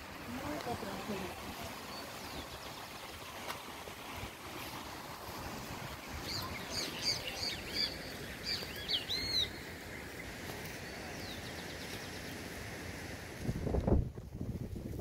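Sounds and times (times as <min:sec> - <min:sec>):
running water hiss: 0:00.0 - 0:15.0
bird chirping: 0:06.2 - 0:10.3.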